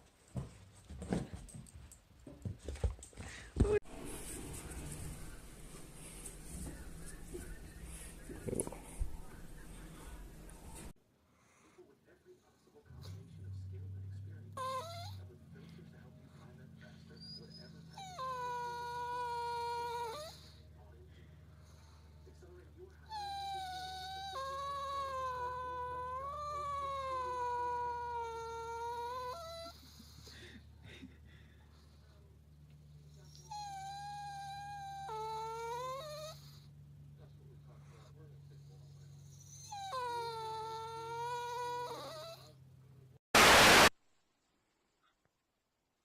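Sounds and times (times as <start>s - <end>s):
pet animal long cry: 18.0s - 20.6s, 23.1s - 30.2s, 39.5s - 42.6s
loud hiss burst: 43.4s - 43.9s.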